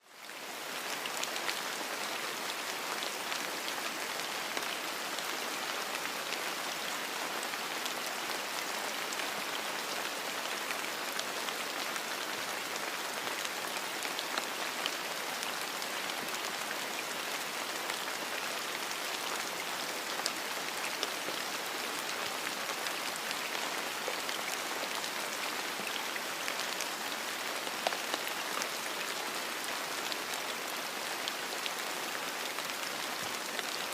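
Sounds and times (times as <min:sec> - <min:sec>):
steady rain: 0:00.0 - 0:33.9.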